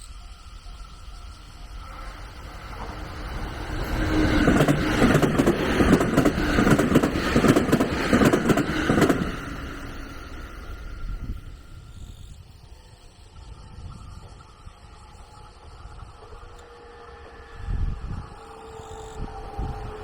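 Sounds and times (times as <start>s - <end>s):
train passing with clattering: 0.1s - 20.0s.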